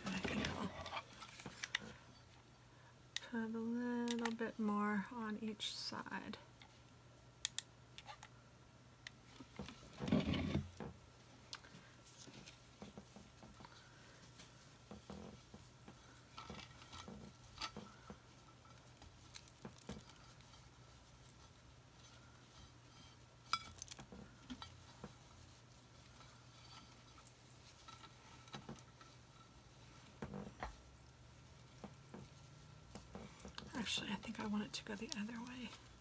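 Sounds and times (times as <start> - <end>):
hands handling craft materials: 0.0 - 2.4, 11.5 - 36.0.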